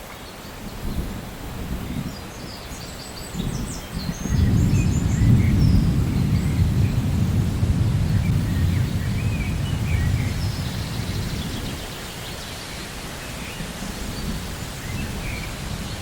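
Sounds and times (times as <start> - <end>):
birds chirping: 1.8 - 16.0
rolling thunder: 3.4 - 12.0.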